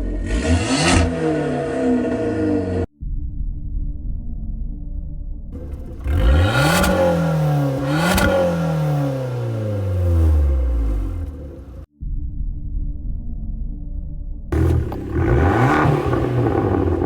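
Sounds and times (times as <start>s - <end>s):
car engine revving with exhaust cracks: 0.0s - 2.9s, 5.6s - 11.9s, 14.6s - 17.0s.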